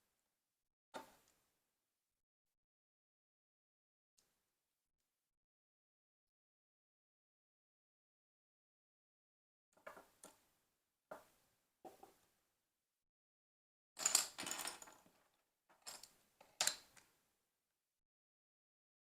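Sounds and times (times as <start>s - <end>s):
plastic bricks clicking and clattering: 14.0s - 17.1s.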